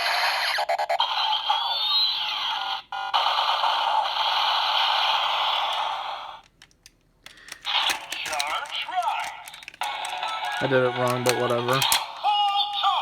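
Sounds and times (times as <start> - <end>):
sharp clicks: 5.8 - 13.0.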